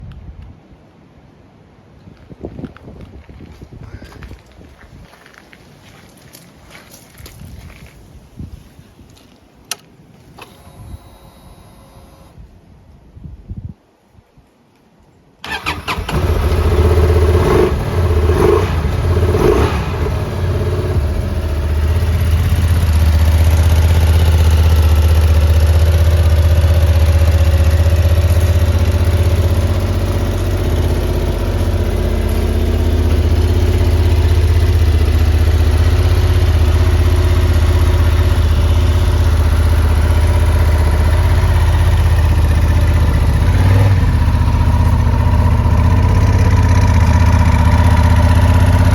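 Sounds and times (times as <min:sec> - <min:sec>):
motorcycle engine starting and revving: 0:09.7 - 0:12.4, 0:15.4 - 0:48.9
motorcycle engine idling: 0:15.5 - 0:48.9.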